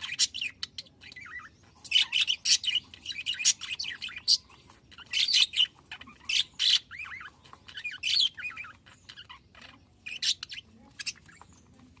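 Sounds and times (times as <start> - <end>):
budgerigars chirping and warbling: 0.0 - 12.0.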